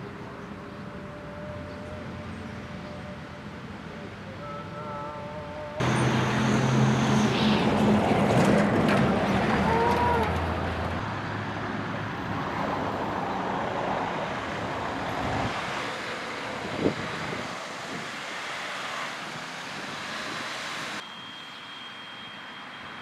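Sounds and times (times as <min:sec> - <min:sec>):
road traffic noise: 0:00.0 - 0:23.0
vehicle engine running close by: 0:05.7 - 0:12.0.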